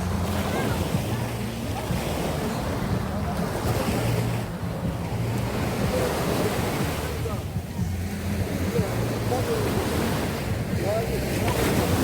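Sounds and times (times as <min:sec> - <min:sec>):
waves breaking on beach: 0:00.0 - 0:12.0
wind on microphone: 0:00.0 - 0:12.0.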